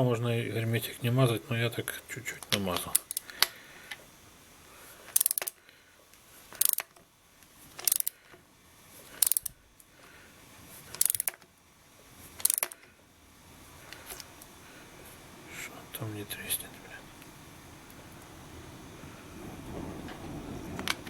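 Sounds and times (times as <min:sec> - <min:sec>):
ratchet wrench clicking: 0:02.8 - 0:03.5, 0:05.1 - 0:05.6, 0:06.5 - 0:07.0, 0:07.8 - 0:08.2, 0:09.2 - 0:09.5, 0:10.9 - 0:11.4, 0:12.4 - 0:12.8.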